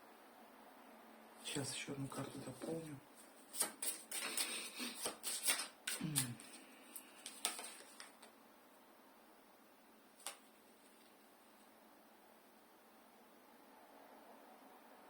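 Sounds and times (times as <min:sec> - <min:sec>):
cards clicking and flicking: 0:03.5 - 0:08.3, 0:10.2 - 0:10.5.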